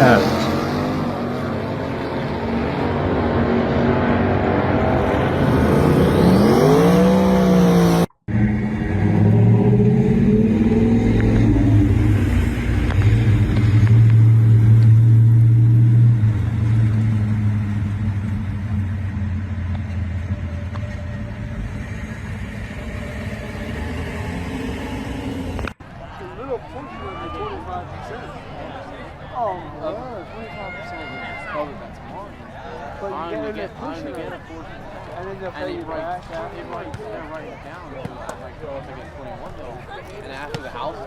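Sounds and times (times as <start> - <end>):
car engine revving: 0.0 - 25.8
deep engine rumble: 8.3 - 25.8.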